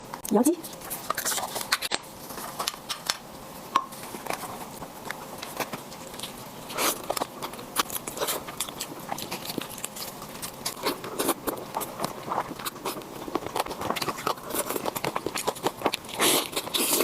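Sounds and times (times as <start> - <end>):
crunchy chewing: 4.0 - 17.0.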